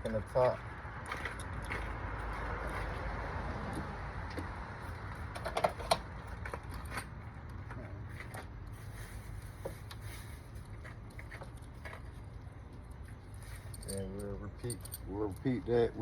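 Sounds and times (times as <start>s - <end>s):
small metal screws clicking: 12.9s - 15.6s.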